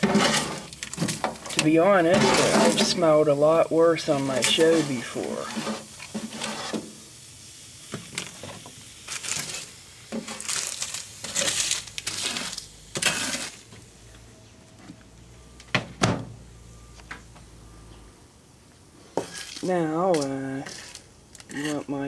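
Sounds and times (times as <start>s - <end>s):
objects scraping and clattering: 0.0s - 3.2s, 4.1s - 7.0s, 7.9s - 13.9s, 19.0s - 22.0s.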